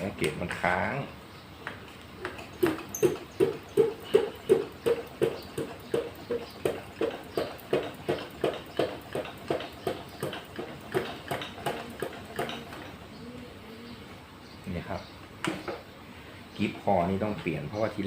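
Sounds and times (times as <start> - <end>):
hand air pump strokes: 2.3 - 12.8.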